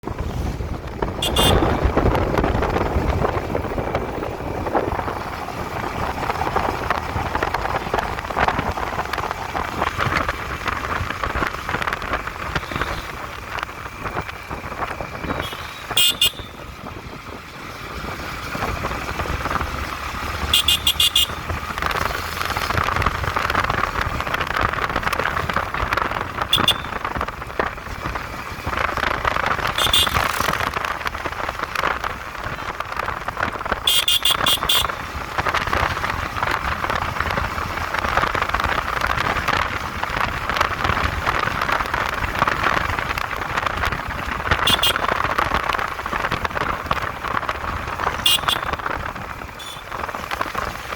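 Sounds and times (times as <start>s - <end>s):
wind and motorcycle engine rush: 0.0s - 50.9s
short horn beeps: 1.2s - 1.8s, 15.4s - 16.6s, 20.6s - 21.4s, 26.6s - 27.0s, 29.8s - 30.2s, 33.9s - 34.9s, 44.7s - 45.1s, 48.3s - 48.7s.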